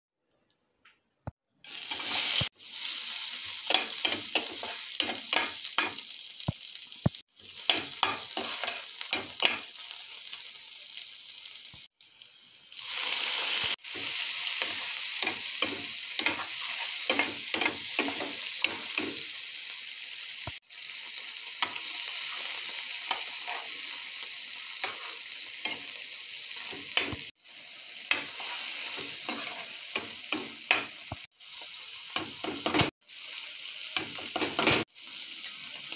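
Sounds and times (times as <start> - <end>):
food sizzling in hot oil: 1.6 - 35.9
metal spatula scraping pan: 28.1 - 29.8.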